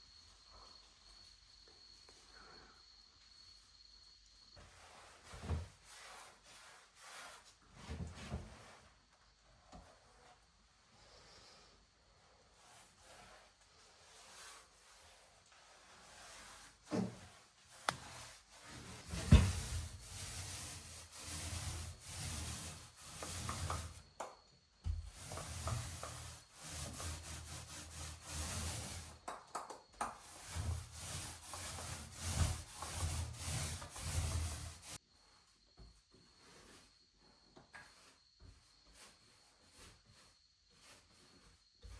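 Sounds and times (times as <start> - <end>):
hand rubbing wall: 4.6 - 8.8, 12.1 - 35.0, 37.8 - 41.9.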